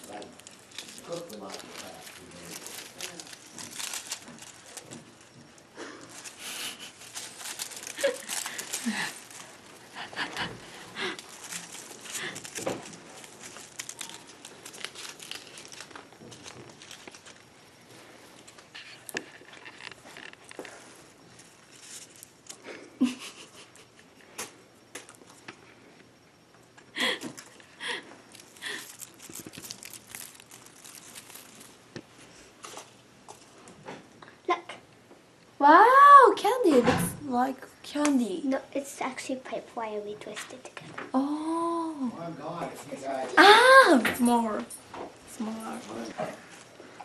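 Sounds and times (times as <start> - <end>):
small clicks and crackles: 0.0 - 26.1, 26.8 - 33.8
ornaments and wrapping crinkling: 0.0 - 34.2, 39.0 - 47.0.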